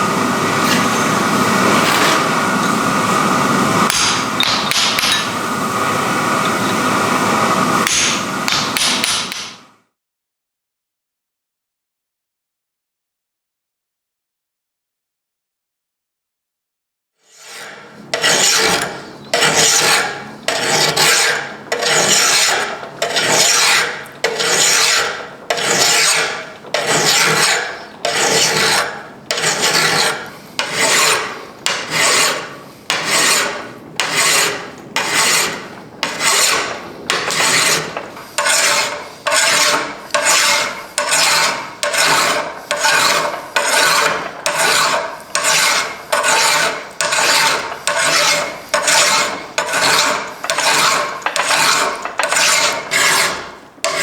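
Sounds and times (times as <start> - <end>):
hand file on metal anvil: 3.9 - 5.4, 7.8 - 9.6, 17.3 - 54.0.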